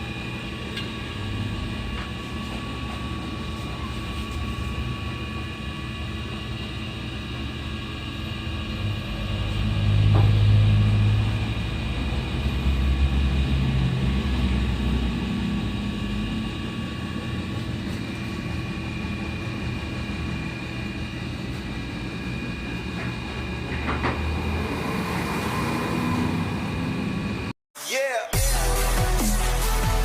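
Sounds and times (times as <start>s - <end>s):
machine running with whine: 0.0s - 27.5s.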